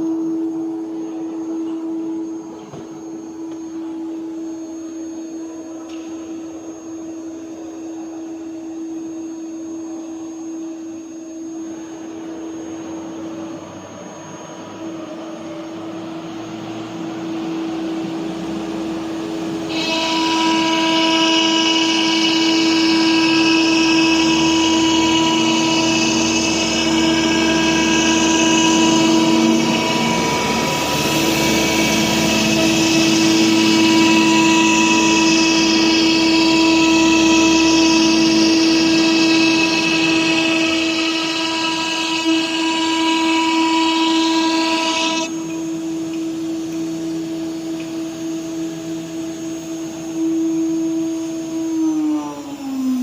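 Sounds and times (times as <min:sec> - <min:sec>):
router spindle whining: 0:11.3 - 0:53.0.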